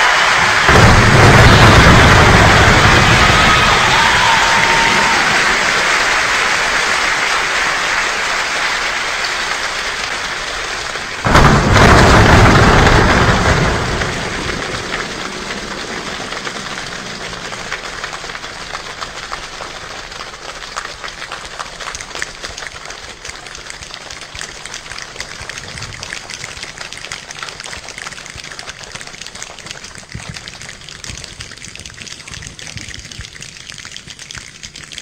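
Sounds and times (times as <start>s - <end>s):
rain falling: 0.0s - 35.0s
thunder clap rumbling: 0.1s - 6.2s, 11.2s - 18.5s
raindrops ticking: 8.7s - 35.0s.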